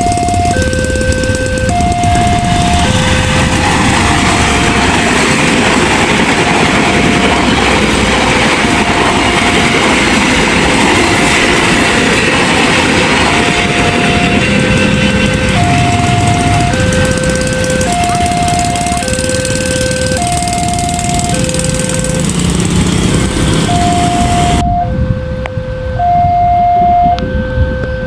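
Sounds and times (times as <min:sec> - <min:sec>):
train wheels clacking on rails: 0:00.0 - 0:24.6
level crossing warning alarm: 0:00.0 - 0:28.0.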